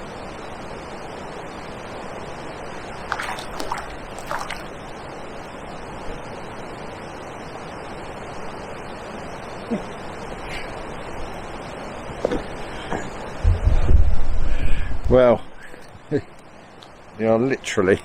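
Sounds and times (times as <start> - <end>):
wind: 0.0 - 18.0
water lapping: 3.0 - 4.8.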